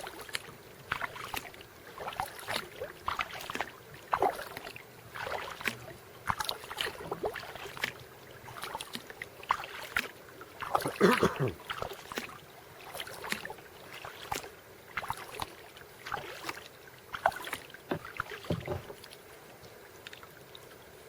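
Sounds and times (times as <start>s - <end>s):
paddle splashing and dripping: 0.0s - 21.0s
water lapping at hull: 0.0s - 21.0s.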